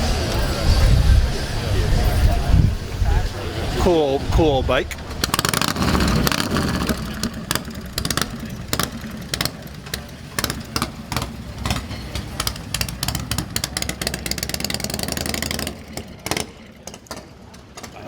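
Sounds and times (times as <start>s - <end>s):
motorcycle engine idling: 4.4s - 18.0s
sharp irregular clicks: 5.2s - 18.0s.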